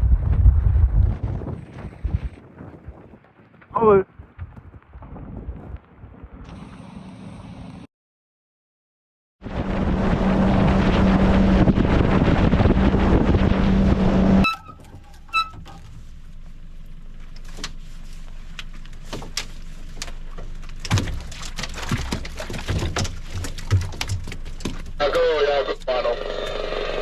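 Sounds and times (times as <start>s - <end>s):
boat motor running: 9.5s - 17.1s
short pings: 14.4s - 15.8s.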